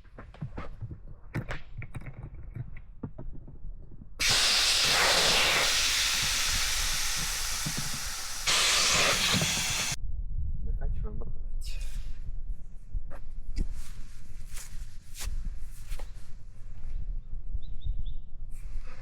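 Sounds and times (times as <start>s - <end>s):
loud steady hiss: 4.2s - 10.0s.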